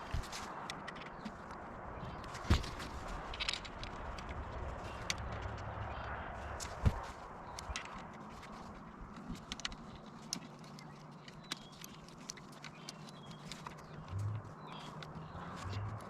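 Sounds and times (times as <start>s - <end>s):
light clicks and taps: 3.3s - 16.0s.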